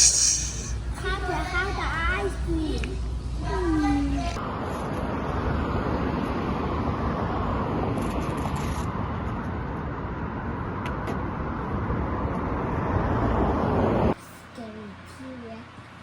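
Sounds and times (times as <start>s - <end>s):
car road noise: 4.2s - 14.2s.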